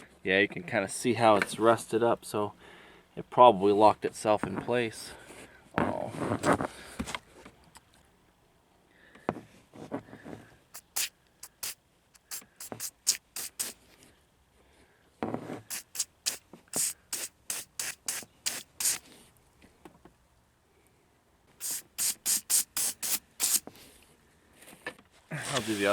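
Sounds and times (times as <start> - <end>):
aerosol spray hiss: 10.7 - 13.8, 15.7 - 19.0, 21.6 - 23.6, 25.5 - 25.9
dull rubbing sounds: 25.4 - 25.9.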